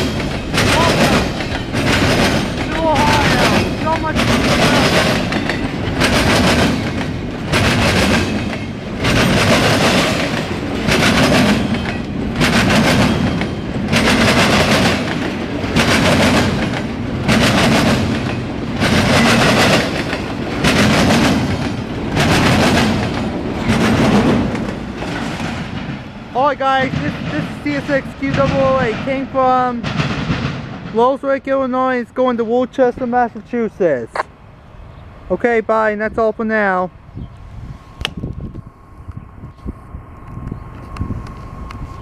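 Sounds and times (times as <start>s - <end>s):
train wheels clacking over rail joints: 0.0s - 31.4s.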